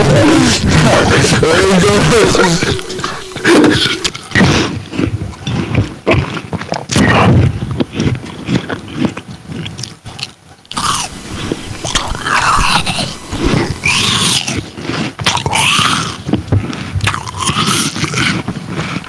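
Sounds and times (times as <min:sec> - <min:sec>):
short wordless vocal sounds: 0:00.0 - 0:04.2
people chewing and biting: 0:00.0 - 0:19.0.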